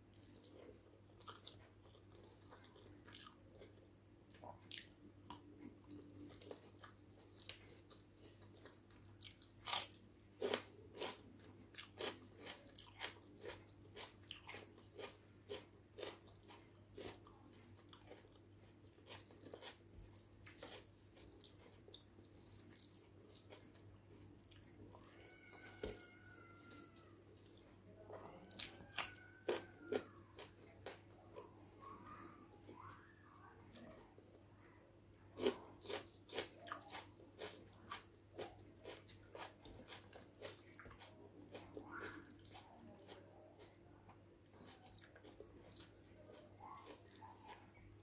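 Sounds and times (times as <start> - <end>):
close chewing with wet mouth clicks: 35.4 - 43.8, 44.4 - 47.8.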